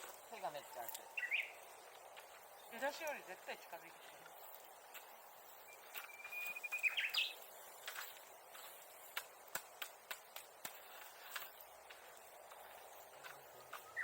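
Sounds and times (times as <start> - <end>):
wood bonfire crackling: 0.0 - 14.0
bird whistling: 1.1 - 1.6, 5.6 - 7.4, 13.6 - 14.0.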